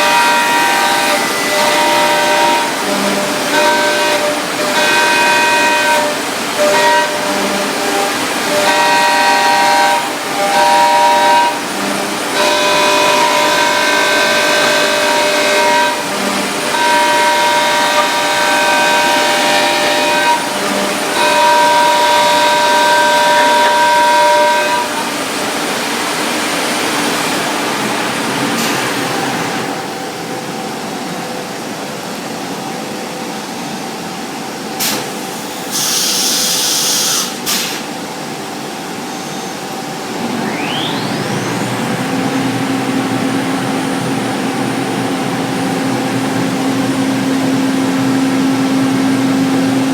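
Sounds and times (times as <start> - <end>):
burst of hiss: 34.8 - 38.0
router spindle whine: 40.0 - 49.9.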